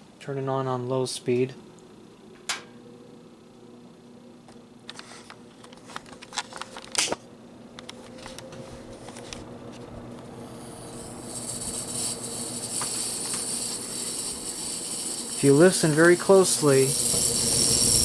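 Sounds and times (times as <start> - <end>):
fan motor buzzing hum: 0.1 - 18.0
fan switch clicks: 2.4 - 2.8.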